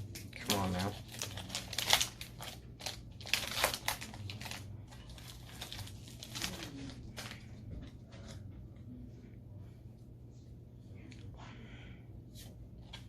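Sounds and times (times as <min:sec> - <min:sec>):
foil wrapper crinkling: 0:00.2 - 0:07.6.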